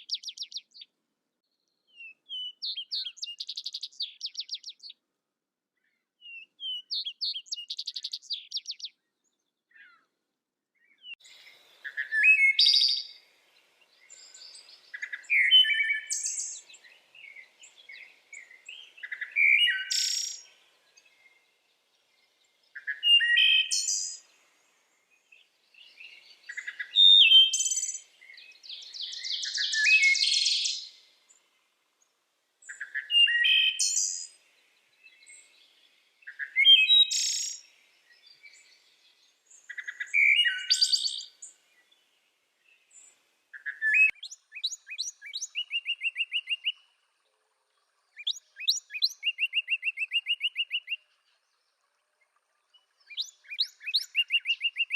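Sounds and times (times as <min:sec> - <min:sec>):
songbird singing: 0:00.0 - 0:05.1, 0:05.8 - 0:54.9.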